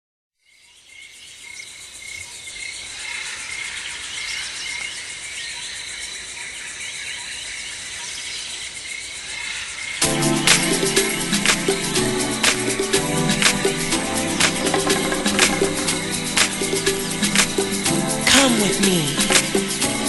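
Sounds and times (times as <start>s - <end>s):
insects trilling: 0.4s - 20.0s
drum beat: 10.0s - 20.0s.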